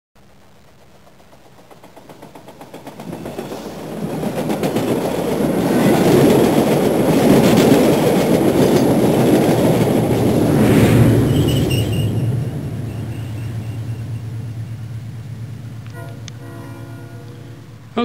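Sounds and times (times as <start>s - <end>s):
train wheels clickety-clack: 0.7s - 10.4s.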